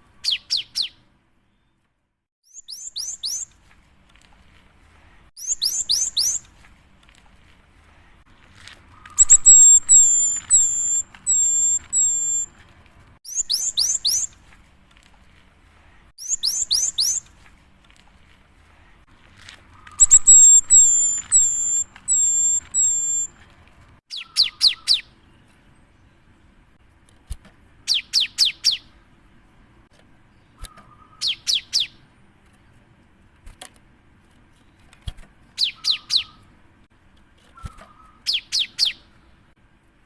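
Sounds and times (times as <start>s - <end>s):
bird singing whistled notes: 0.2s - 1.8s, 2.4s - 3.5s, 5.4s - 6.5s, 9.0s - 12.5s, 13.2s - 14.4s, 16.2s - 17.3s, 19.8s - 23.4s, 24.1s - 25.5s, 30.4s - 32.0s, 35.6s - 36.4s, 37.6s - 39.0s.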